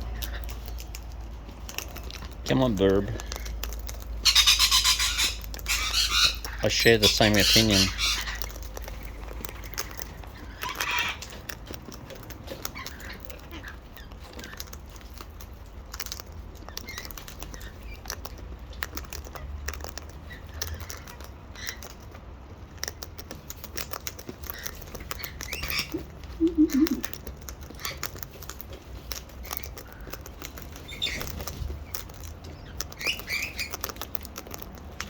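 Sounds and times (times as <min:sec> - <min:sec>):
parrots cracking seed: 0:00.0 - 0:35.0
parrot squawk: 0:04.2 - 0:08.5, 0:10.4 - 0:11.3.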